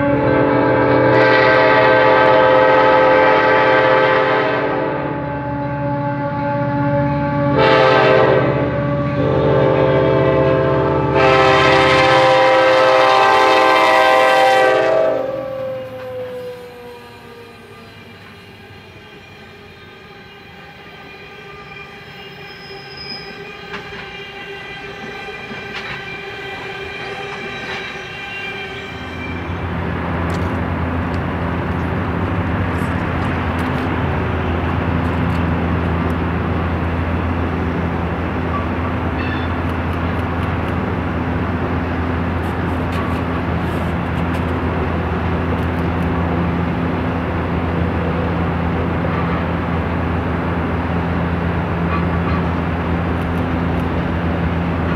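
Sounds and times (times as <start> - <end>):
multi-tone train whine: 0.0 - 54.9
steel wheels rolling on rails: 15.3 - 54.9.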